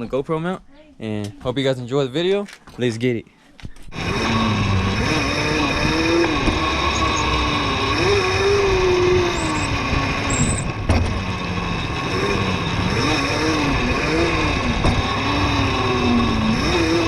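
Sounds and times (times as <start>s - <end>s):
mini bike motor revving: 3.9s - 17.0s
rush of riding noise: 3.9s - 17.0s.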